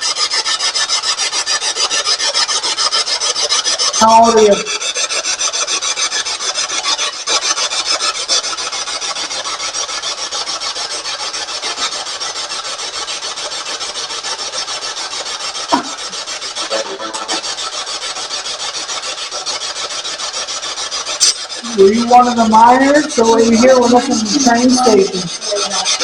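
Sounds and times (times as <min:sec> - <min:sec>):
pulsing radio static: 0:16.6 - 0:17.4, 0:21.6 - 0:25.9.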